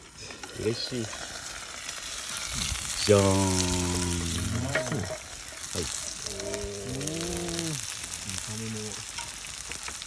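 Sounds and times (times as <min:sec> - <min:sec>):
food sizzling over campfire: 0:00.0 - 0:10.0
person making drawn-out vocal sound: 0:06.2 - 0:08.4.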